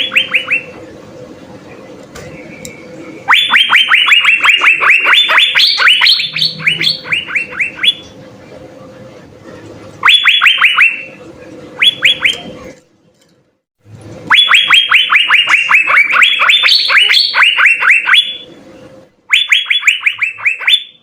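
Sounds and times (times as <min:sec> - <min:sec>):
bird whistling sharp notes: 0:03.3 - 0:08.2, 0:11.8 - 0:12.5.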